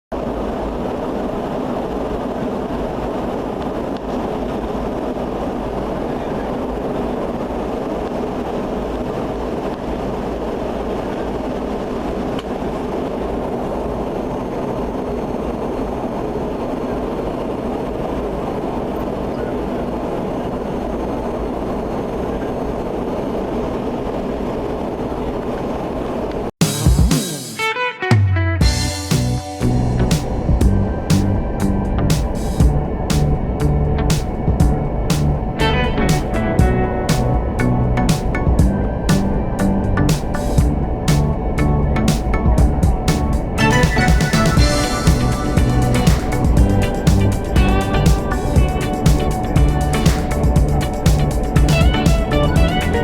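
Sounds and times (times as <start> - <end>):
jet airliner rumble: 28.6 - 53.0.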